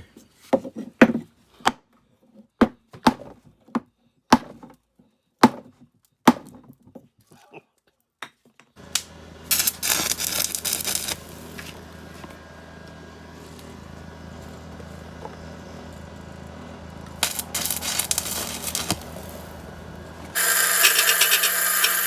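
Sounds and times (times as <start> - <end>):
trimmer engine running: 8.8 - 22.0.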